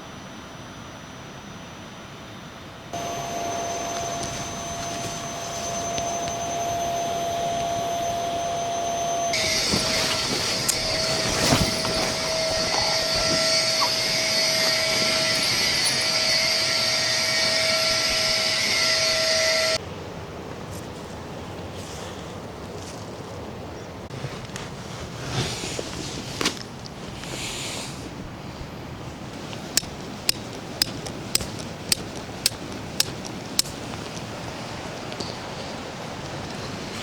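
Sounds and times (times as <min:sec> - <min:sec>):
faint steady tone: 0:00.0 - 0:19.8.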